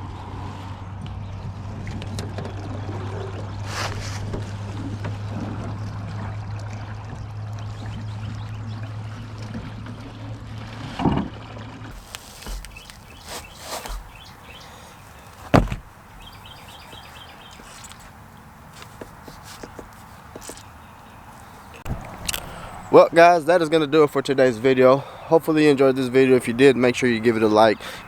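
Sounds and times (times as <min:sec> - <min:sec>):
hollow knocks on boat: 0:11.9 - 0:18.0
loud thump: 0:12.0 - 0:14.6, 0:15.3 - 0:16.4
faint bird chirps: 0:12.1 - 0:18.5.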